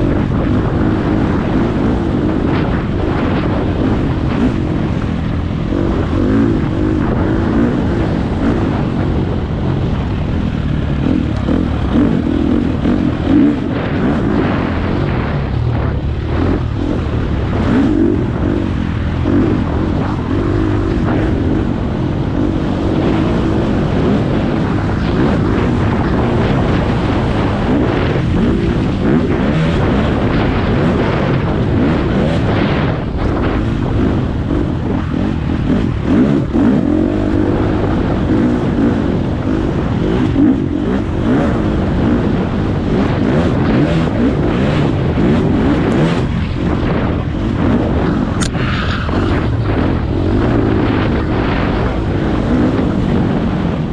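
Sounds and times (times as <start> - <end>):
dirt bike engine running: 0.0 - 53.9.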